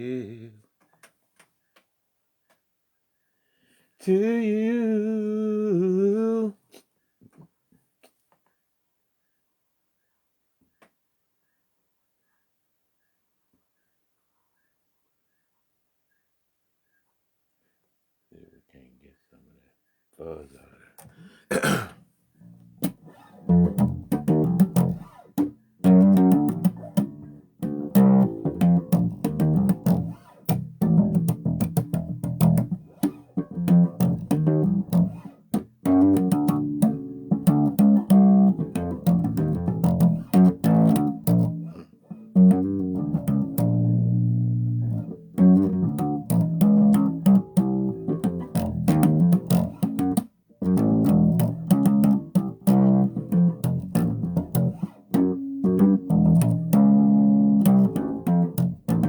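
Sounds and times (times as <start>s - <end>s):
electric bass guitar notes: 22.5s - 59.0s.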